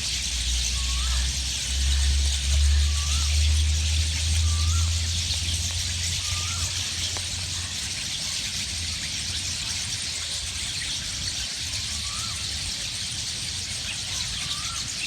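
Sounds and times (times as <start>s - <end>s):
flock of birds chattering: 0.0s - 15.0s
whistled bird call: 0.4s - 1.8s, 2.4s - 7.7s, 10.2s - 15.0s.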